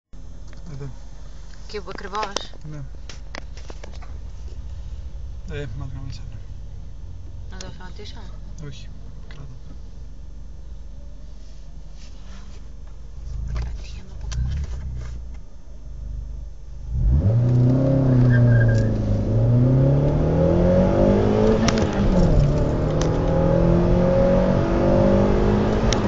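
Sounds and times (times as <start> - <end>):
car engine revving: 13.0 - 15.3, 15.9 - 26.0.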